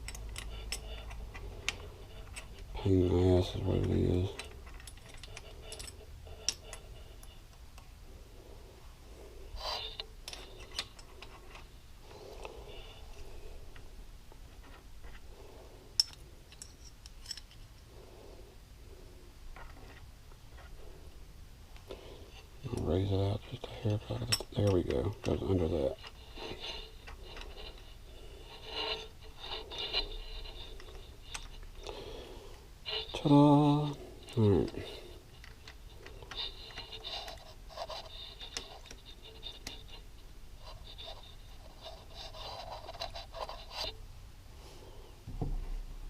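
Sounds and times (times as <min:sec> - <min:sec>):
metal parts clicking and tapping: 0:00.0 - 0:02.8, 0:03.4 - 0:07.6, 0:09.7 - 0:11.7, 0:16.0 - 0:17.8, 0:22.6 - 0:32.0, 0:32.9 - 0:41.8.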